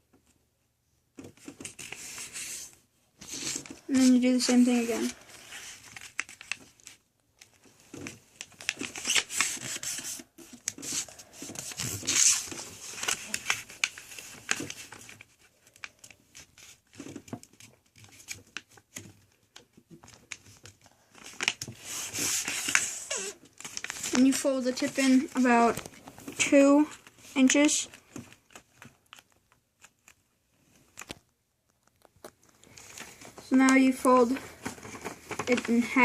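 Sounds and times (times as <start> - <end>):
paper crinkling and rustling: 1.2 - 36.0.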